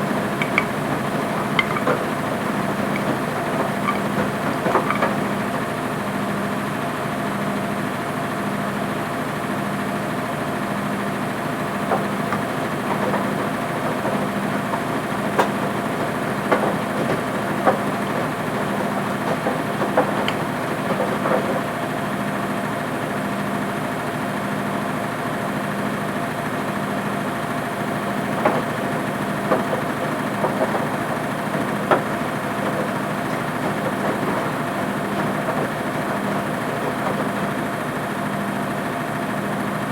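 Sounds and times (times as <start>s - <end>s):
washing machine motor hum: 0.0s - 7.9s, 10.3s - 23.9s, 26.0s - 39.9s
light clicks and knocks: 0.1s - 5.4s.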